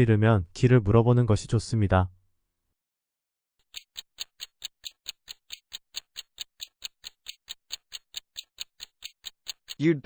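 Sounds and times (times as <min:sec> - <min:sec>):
clock timer ticking: 0:03.6 - 0:09.9.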